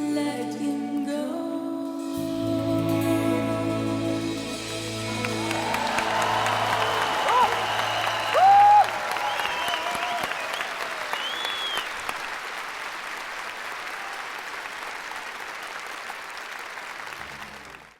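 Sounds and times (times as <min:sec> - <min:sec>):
loud held tone: 0:02.2 - 0:10.5
audience whoops: 0:04.5 - 0:12.2, 0:13.7 - 0:14.9
audience applauding: 0:04.5 - 0:17.9.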